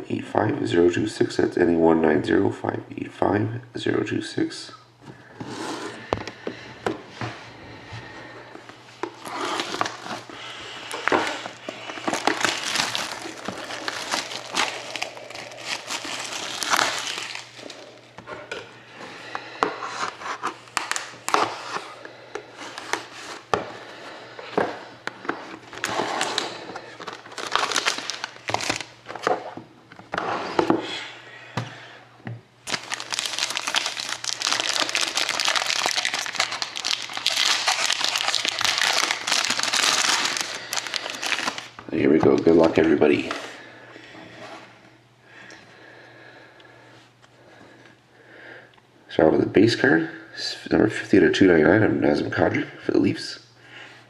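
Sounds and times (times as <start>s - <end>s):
plastic wrapping crinkling and tearing: 9.0s - 18.1s, 20.5s - 21.8s, 25.5s - 29.3s, 32.6s - 41.8s.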